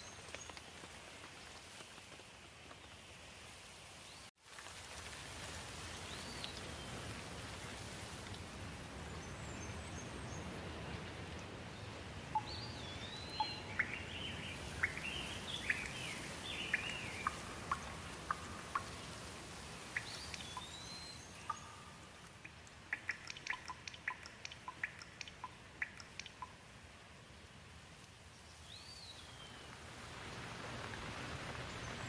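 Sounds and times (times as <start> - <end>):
steady rain: 0.0 - 32.0
raindrops ticking: 12.2 - 26.8.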